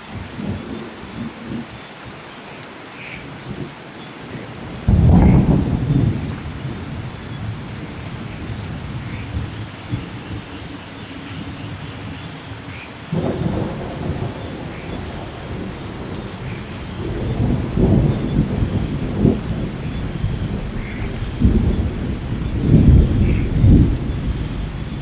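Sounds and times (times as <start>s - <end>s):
steady rain: 0.0s - 25.0s
thunder rumbling: 4.6s - 10.5s, 13.1s - 25.0s.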